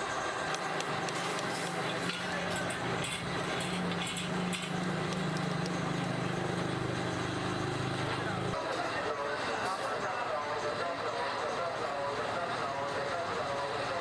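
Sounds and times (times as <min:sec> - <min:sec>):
machine humming: 0:00.2 - 0:08.6
metallic clinks and clicks: 0:00.5 - 0:07.6.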